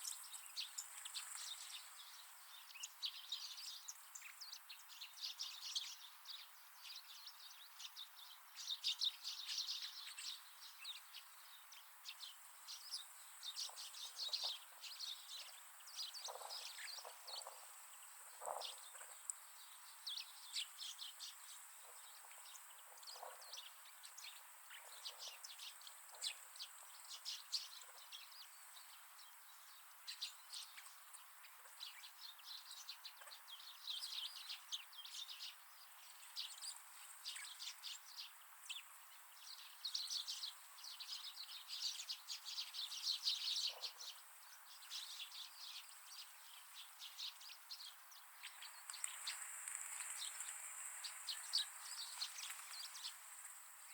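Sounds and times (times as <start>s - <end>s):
flock of birds chirping: 0.0s - 53.9s.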